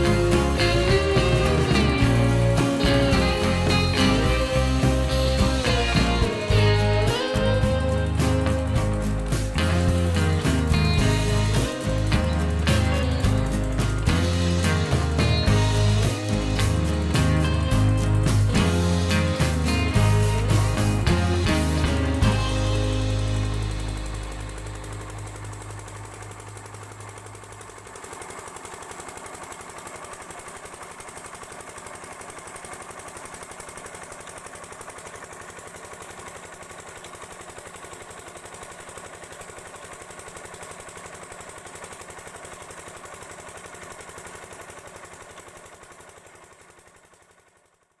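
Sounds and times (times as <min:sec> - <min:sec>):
diesel pump engine knocking: 0:00.0 - 0:48.0.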